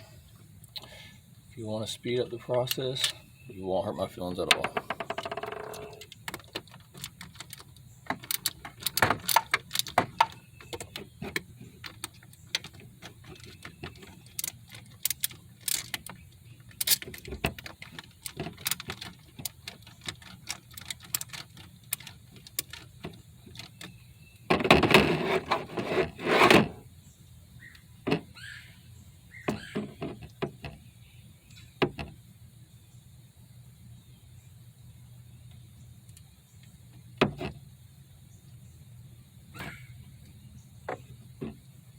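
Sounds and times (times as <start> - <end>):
ratchet clicking: 5.1 - 23.9.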